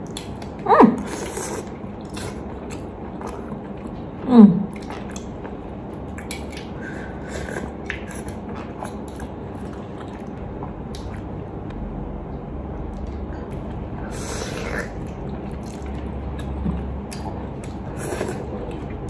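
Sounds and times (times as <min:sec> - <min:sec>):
chewing and slurping: 0:06.2 - 0:11.3, 0:12.9 - 0:19.0.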